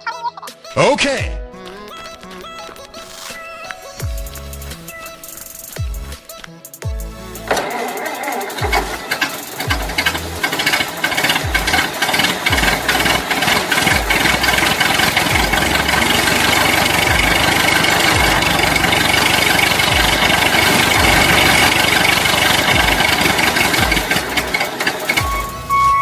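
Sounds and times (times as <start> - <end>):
low thumping beat: 4.0 - 7.6, 9.6 - 10.5, 11.4 - 13.0, 13.9 - 14.6, 15.2 - 21.7, 22.3 - 26.0
small engine running: 7.5 - 25.8.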